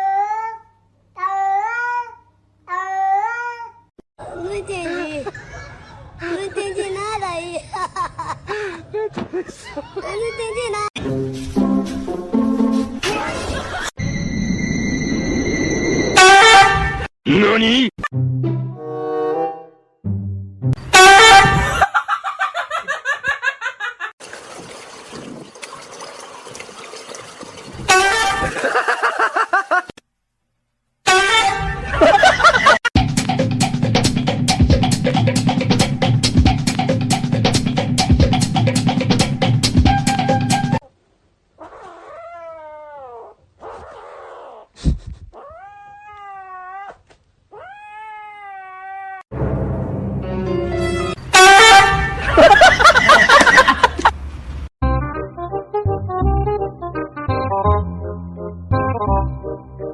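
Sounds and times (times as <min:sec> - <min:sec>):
cat yowling: 0:41.6 - 0:44.0, 0:45.4 - 0:49.3.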